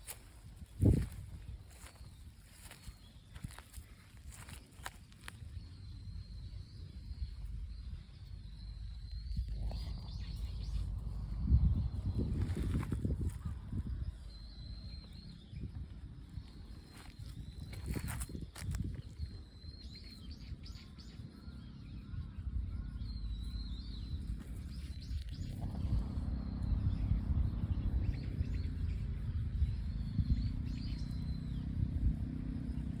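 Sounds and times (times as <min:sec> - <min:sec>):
small birds chirping: 0:00.0 - 0:33.0
steady low rumble: 0:00.0 - 0:33.0.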